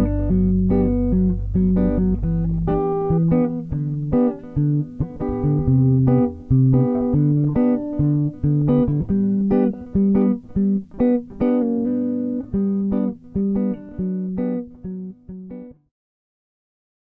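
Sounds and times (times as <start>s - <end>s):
plucked guitar melody: 0.0s - 15.9s.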